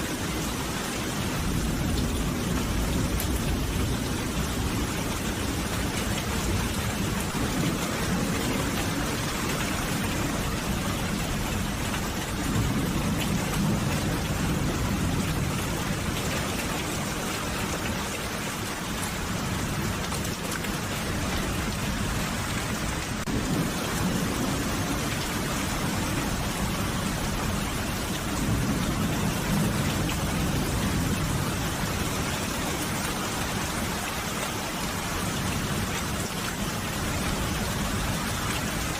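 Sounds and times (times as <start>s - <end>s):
steady rain: 0.0s - 38.9s
distant thunder rumbles: 1.1s - 17.9s, 20.6s - 33.9s.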